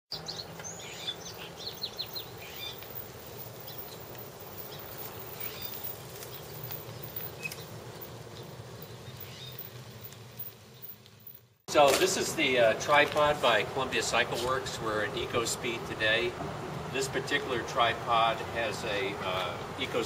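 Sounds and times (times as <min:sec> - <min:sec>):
small birds chirping: 0:00.1 - 0:11.6
low outdoor hum: 0:00.2 - 0:20.0.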